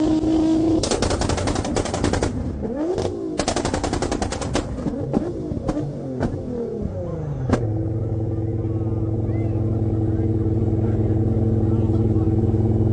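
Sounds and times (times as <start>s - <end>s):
engine revving and idling: 0.0s - 12.9s
exhaust pops and crackles: 0.7s - 6.5s, 7.5s - 7.7s.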